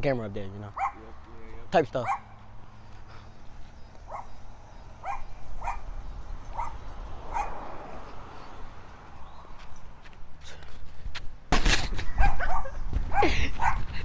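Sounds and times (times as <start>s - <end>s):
dog barking: 0.8s - 1.1s, 2.0s - 2.4s, 4.1s - 4.4s, 5.0s - 5.9s, 6.5s - 7.7s, 12.2s - 13.9s.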